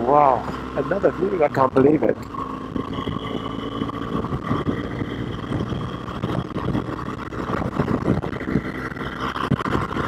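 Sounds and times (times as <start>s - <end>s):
motorcycle engine running: 0.0s - 10.0s
wind noise on microphone: 2.6s - 10.0s.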